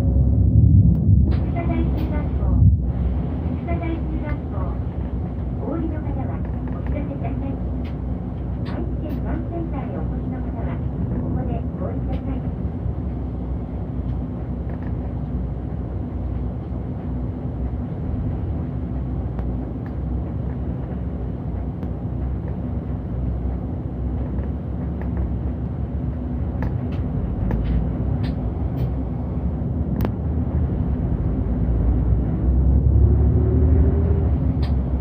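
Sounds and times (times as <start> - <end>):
bus engine and road noise: 0.0 - 35.0
low hum: 0.0 - 35.0.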